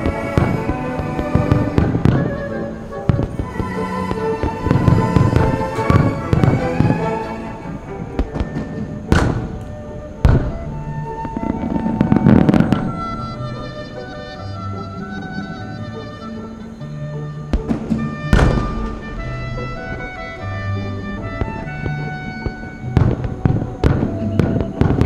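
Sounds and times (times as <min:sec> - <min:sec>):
fireworks bursting: 0:00.0 - 0:25.0
orchestral background music: 0:00.0 - 0:25.0.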